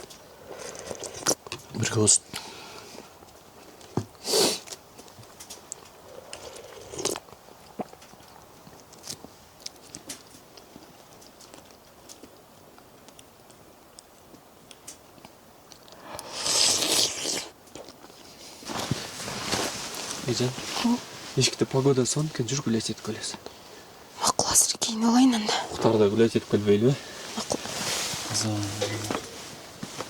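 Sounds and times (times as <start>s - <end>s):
person chewing food: 0.0s - 1.6s, 3.6s - 19.0s
loud rustle: 18.5s - 21.6s, 27.0s - 30.0s.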